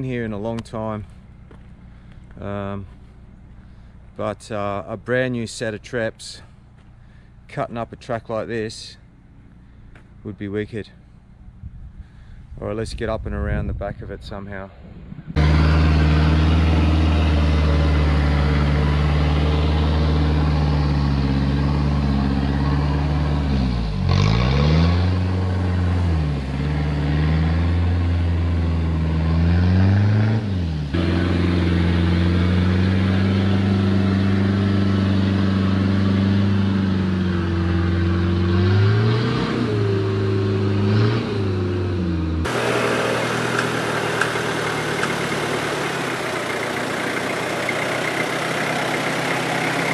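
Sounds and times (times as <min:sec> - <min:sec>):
diesel engine running under load: 0:15.3 - 0:49.9.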